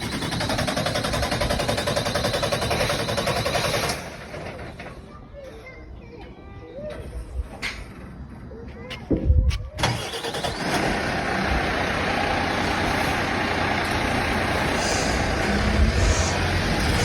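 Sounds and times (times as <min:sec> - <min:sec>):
truck engine starting and running: 0:00.0 - 0:04.8, 0:09.8 - 0:17.0.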